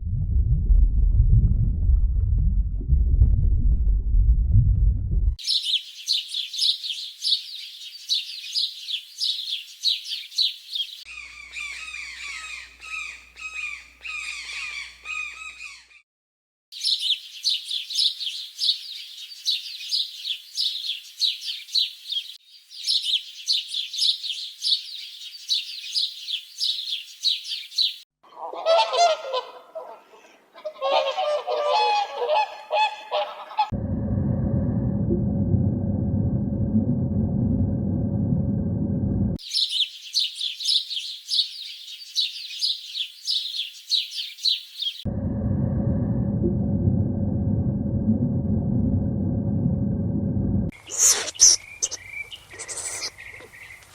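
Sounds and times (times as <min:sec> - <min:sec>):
high-pitched animal calls: 0:50.7 - 0:53.7.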